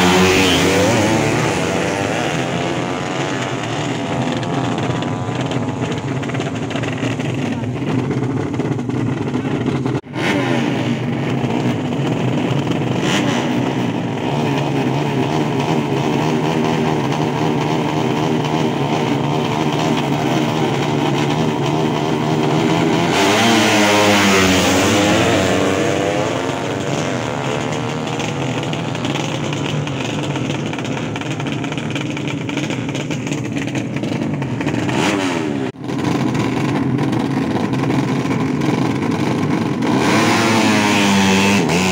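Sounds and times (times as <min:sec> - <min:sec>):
motorcycle passing by: 0:00.0 - 0:05.6, 0:22.6 - 0:27.8
motorcycle engines revving: 0:00.0 - 0:41.9.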